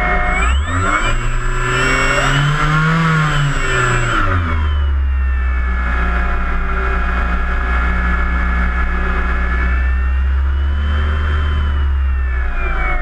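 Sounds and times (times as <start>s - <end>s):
model plane motor whine: 0.0s - 13.0s.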